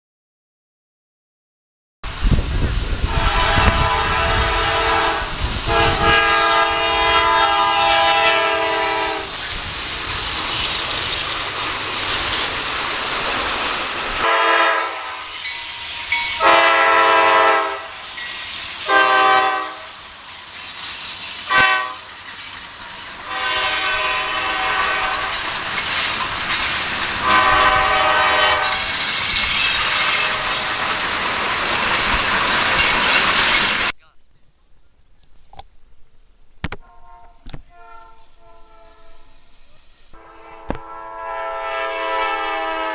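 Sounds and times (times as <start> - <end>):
train moving on rails: 2.1 - 36.2, 36.8 - 42.9
locomotive air horn blasts: 3.0 - 9.4, 14.2 - 15.4, 16.4 - 18.0, 18.8 - 20.0, 21.5 - 22.1, 23.2 - 25.4, 27.2 - 28.9, 30.0 - 30.8, 36.8 - 39.4, 40.2 - 42.9.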